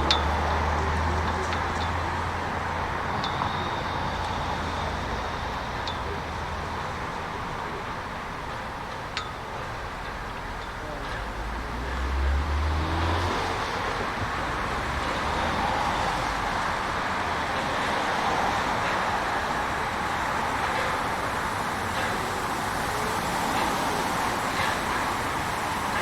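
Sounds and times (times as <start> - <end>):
low engine rumble: 0.0 - 26.0
tyres rolling noise: 0.0 - 26.0
vehicle passing by: 11.5 - 18.6.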